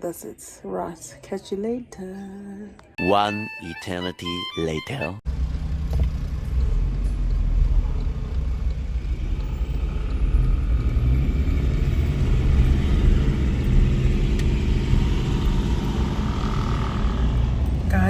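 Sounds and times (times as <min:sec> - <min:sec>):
car engine rumble: 0:05.3 - 0:18.0
road noise inside car: 0:05.3 - 0:18.0.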